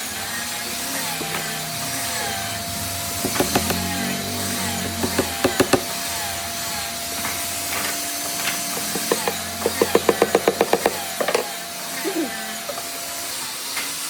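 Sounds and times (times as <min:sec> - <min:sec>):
workshop machine hum: 0:00.0 - 0:14.0
sharp knocks on wood: 0:03.2 - 0:04.1, 0:04.8 - 0:06.0, 0:08.8 - 0:11.5.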